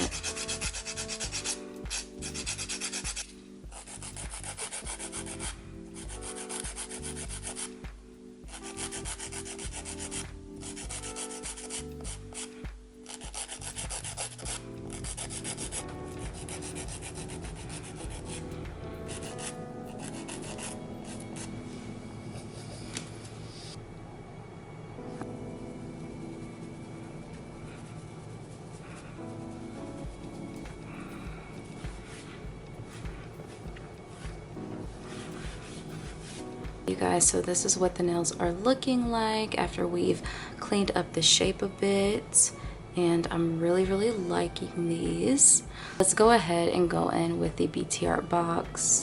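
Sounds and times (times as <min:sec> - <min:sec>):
nail file rasping on nails: 0:00.0 - 0:07.8, 0:08.5 - 0:21.5.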